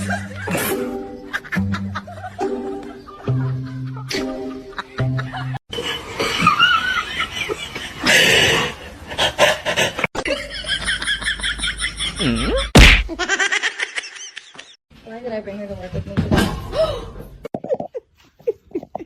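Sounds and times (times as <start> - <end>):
people laughing: 0.0 - 0.7, 1.3 - 8.5, 9.4 - 14.8.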